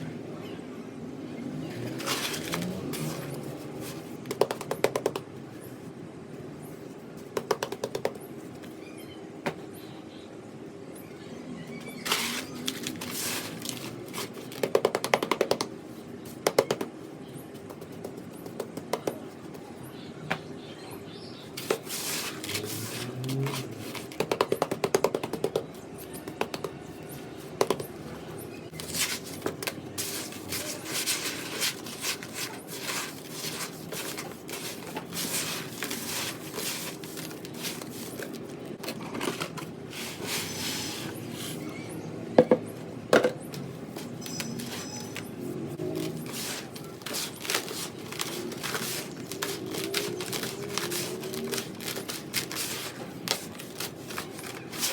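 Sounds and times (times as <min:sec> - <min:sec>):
sand cement crunching: 0:28.8 - 0:38.6.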